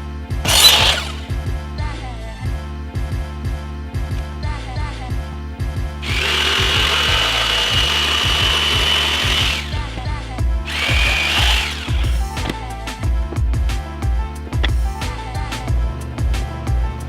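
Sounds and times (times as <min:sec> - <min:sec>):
background music with steady beat: 0:00.0 - 0:17.0
power tool cutting wood: 0:00.4 - 0:01.3, 0:06.0 - 0:09.8, 0:10.7 - 0:12.6.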